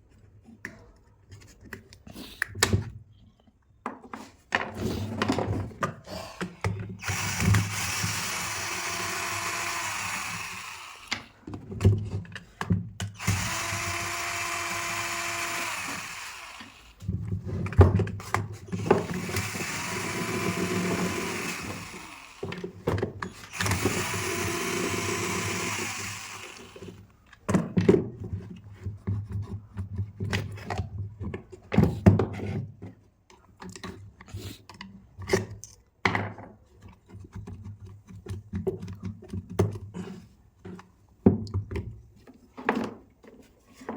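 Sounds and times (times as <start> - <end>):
electric drill motor whine: 7.0 - 11.4, 13.2 - 17.1, 18.7 - 22.7, 23.4 - 27.0.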